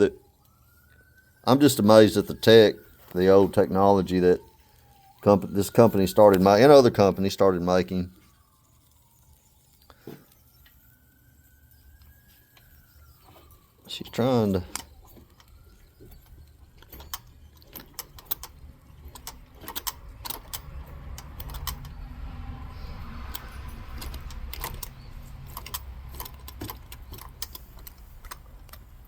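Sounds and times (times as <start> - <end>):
soft steam hiss: 0.2 - 16.2
light metallic clicks and ticks: 11.7 - 29.0.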